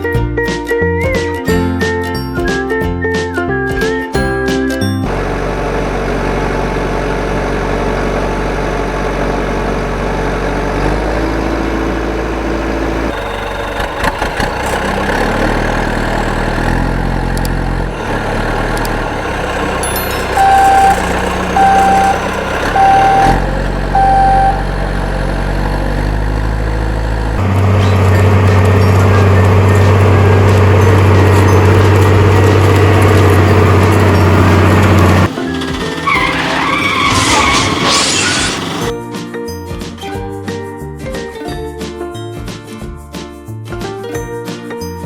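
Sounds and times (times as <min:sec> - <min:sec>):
truck engine running: 0:05.0 - 0:39.0
reversing beeps: 0:19.9 - 0:24.7.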